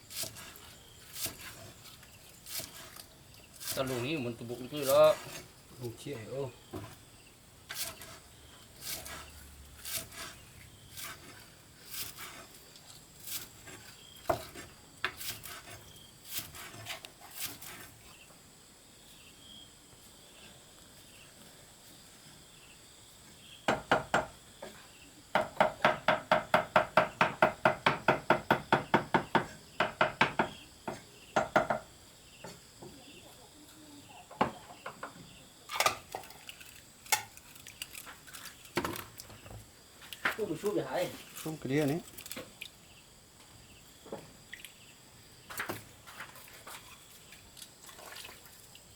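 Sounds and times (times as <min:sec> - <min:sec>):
sharp knocks: 0:23.7 - 0:24.3, 0:25.3 - 0:31.9.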